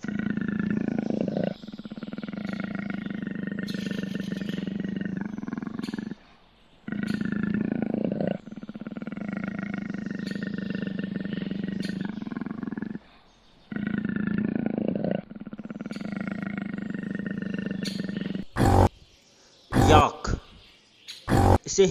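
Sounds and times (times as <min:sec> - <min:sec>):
leopard growling: 0:00.0 - 0:19.0, 0:19.7 - 0:20.5, 0:21.3 - 0:21.7.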